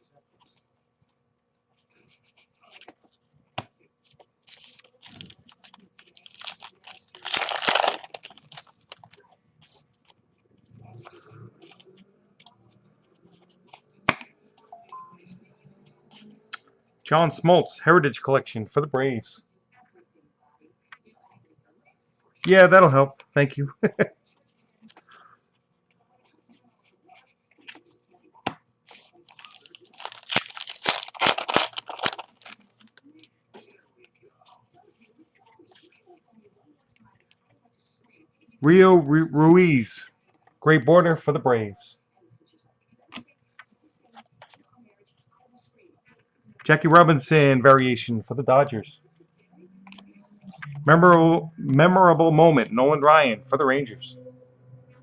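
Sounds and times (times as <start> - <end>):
cards and packaging crinkling: 4.0 - 10.2, 28.9 - 33.7.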